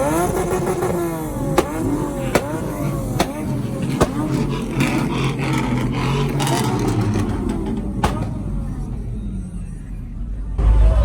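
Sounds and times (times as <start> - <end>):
engine revving in blips: 0.0 - 11.0
sharp cracks: 0.2 - 9.0.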